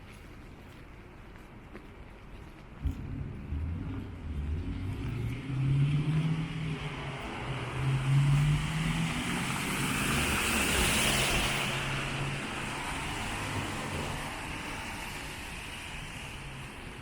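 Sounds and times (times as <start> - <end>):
engine hum: 2.8 - 17.0
tyre hiss on wet road: 6.6 - 17.0.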